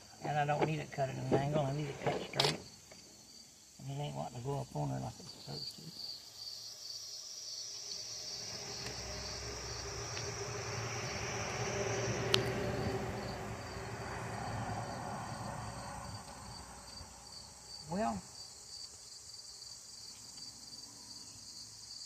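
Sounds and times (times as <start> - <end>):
crickets chirping: 0.0 - 22.0
rushing noise: 7.7 - 17.6.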